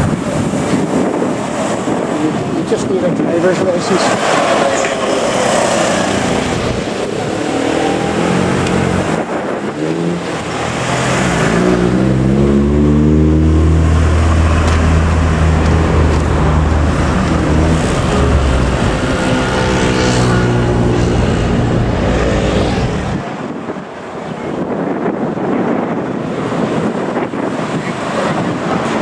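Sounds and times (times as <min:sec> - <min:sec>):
road traffic passing: 0:00.0 - 0:29.0
heavy low engine sound: 0:10.2 - 0:23.2.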